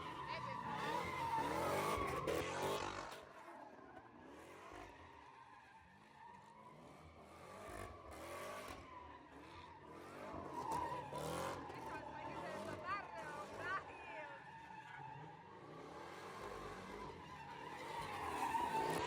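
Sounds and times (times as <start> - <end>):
car tyres squealing: 0.0 - 3.0, 8.2 - 19.0.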